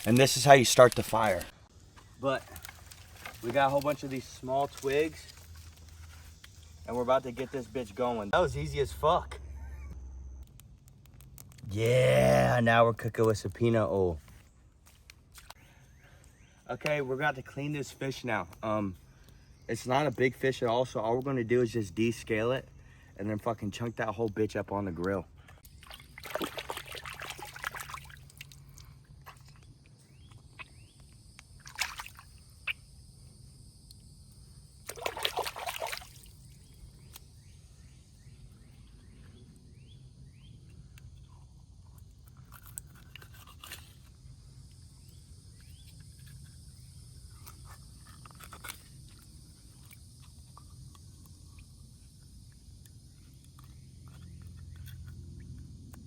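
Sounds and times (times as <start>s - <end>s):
water sloshing and splashing: 25.6s - 29.6s, 31.6s - 32.4s, 34.8s - 36.6s.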